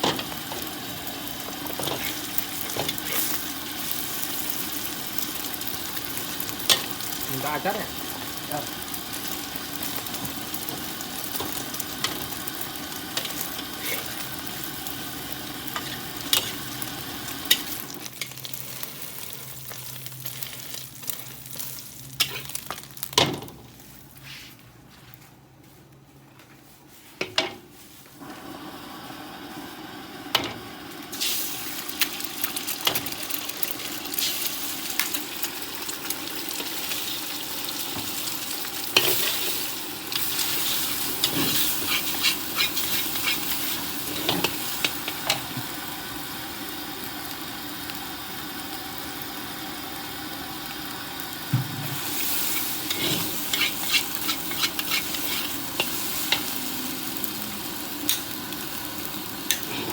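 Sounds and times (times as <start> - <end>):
rice sizzling in a wok: 0.0 - 24.6, 26.9 - 59.9
metal spatula scraping wok: 15.7 - 16.7, 40.2 - 45.0, 52.0 - 56.6, 59.5 - 59.9.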